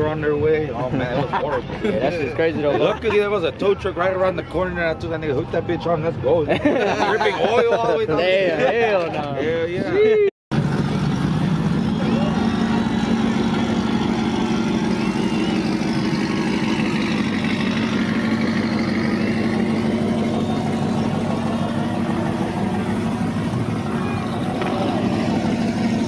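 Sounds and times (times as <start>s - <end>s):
truck engine droning: 10.5s - 26.0s.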